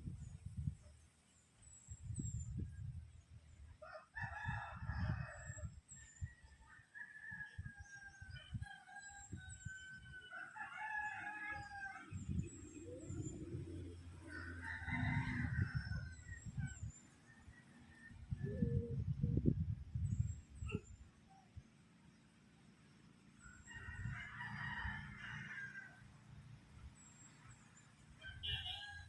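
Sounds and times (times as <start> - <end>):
wind rumble on microphone: 0.0 - 21.8, 23.4 - 26.0
rooster crowing: 3.8 - 5.7, 7.0 - 12.4, 14.2 - 16.3, 23.6 - 26.0, 28.2 - 29.0.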